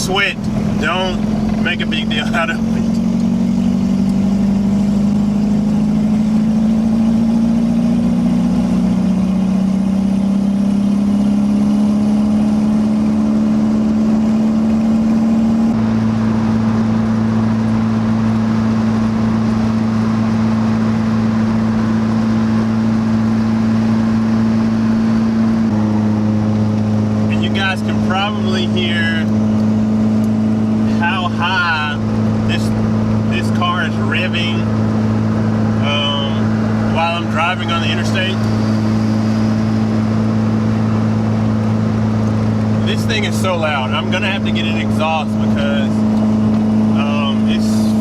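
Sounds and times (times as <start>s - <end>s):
car engine drone: 0.0s - 48.0s.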